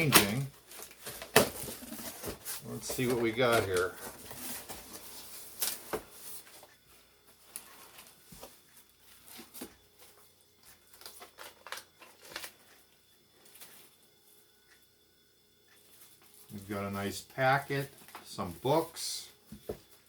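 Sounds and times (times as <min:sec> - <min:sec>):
packaging crinkling and scraping: 0:00.0 - 0:06.7, 0:10.7 - 0:12.8.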